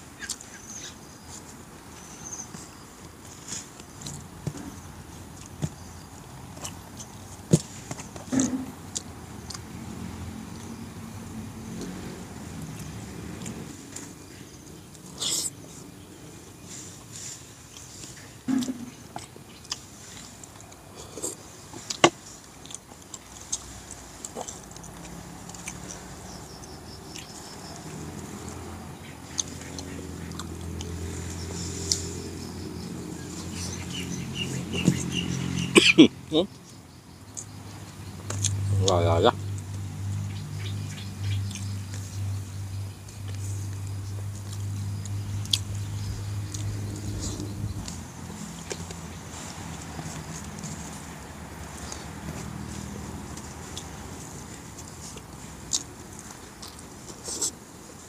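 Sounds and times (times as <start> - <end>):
man chewing and lip smacking: 18.6 - 26.0, 29.3 - 32.0, 43.1 - 45.8, 51.8 - 57.6.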